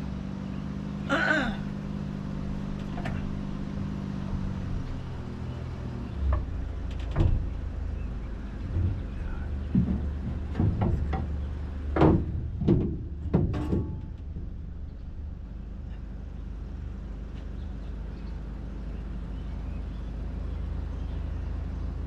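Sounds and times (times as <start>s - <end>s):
low mechanical hum: 0.0s - 22.0s
low rumble: 1.6s - 22.0s
knocks and clanks: 6.2s - 15.3s.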